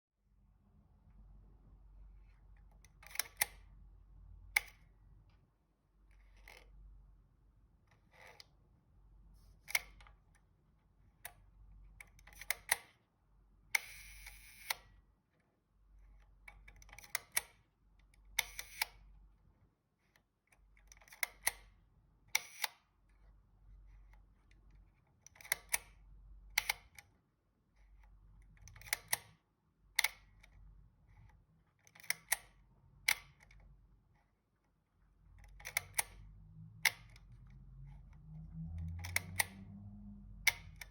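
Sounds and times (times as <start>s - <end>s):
longer mechanical camera sound: 2.1s - 3.8s, 6.1s - 7.0s, 7.7s - 10.4s, 11.2s - 13.0s, 13.6s - 15.1s, 16.0s - 19.3s, 20.9s - 27.1s, 36.8s - 40.9s.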